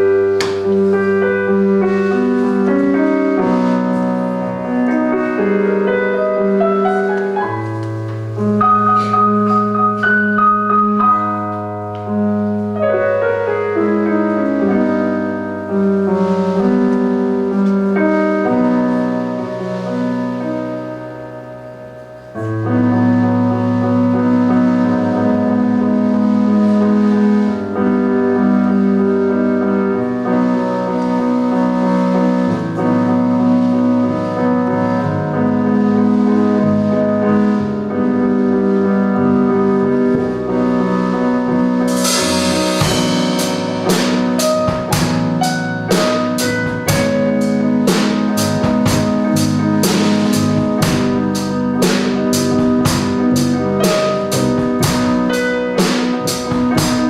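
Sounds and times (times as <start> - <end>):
bass line: 0.0 - 57.0
keyboard chords: 0.0 - 57.0
drums cymbal beat: 41.9 - 57.0.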